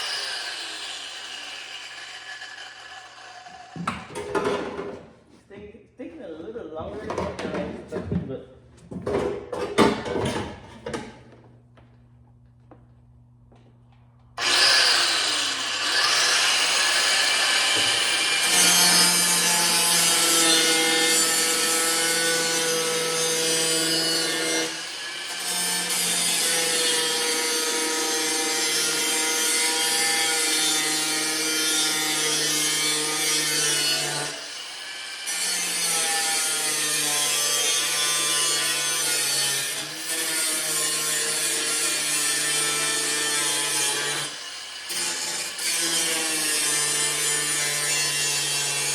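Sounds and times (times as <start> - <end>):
grinder cutting metal: 0.0 - 4.2, 14.4 - 48.9.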